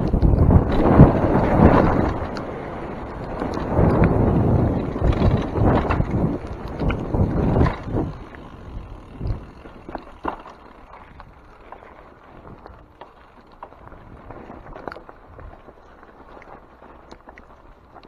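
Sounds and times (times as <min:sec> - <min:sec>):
bike clicks and knocks: 0:00.0 - 0:13.8
bike tyres rolling on wet trail: 0:00.0 - 0:18.0.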